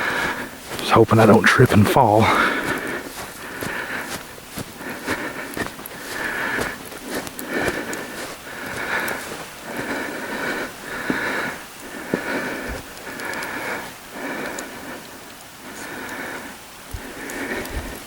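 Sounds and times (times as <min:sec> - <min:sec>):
footsteps in snow: 0:00.0 - 0:14.0
man breathing heavily: 0:00.0 - 0:18.0.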